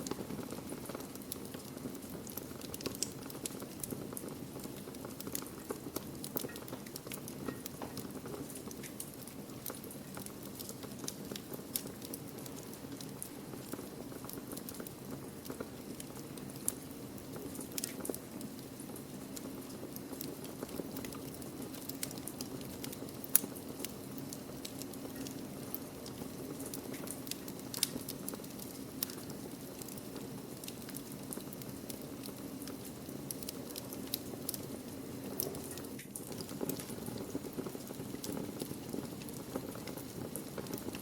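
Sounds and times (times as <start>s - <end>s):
fire crackling and popping: 0.0s - 41.0s.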